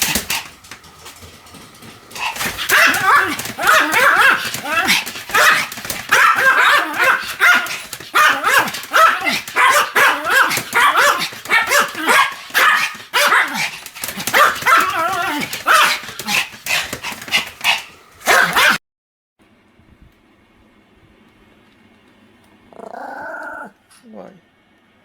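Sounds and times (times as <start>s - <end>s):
small dog yapping: 2.2s - 18.8s.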